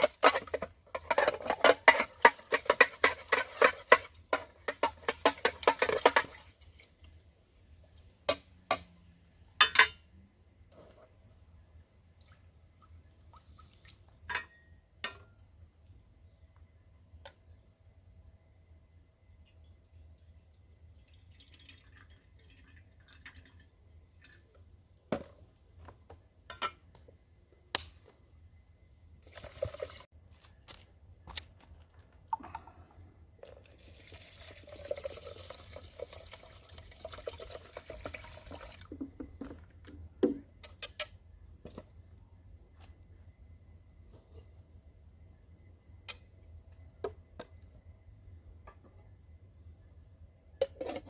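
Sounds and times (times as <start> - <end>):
cookware knocks and clinks: 9.6 - 10.0, 26.5 - 26.8
water pouring: 19.4 - 24.4, 29.2 - 30.1, 33.4 - 39.0.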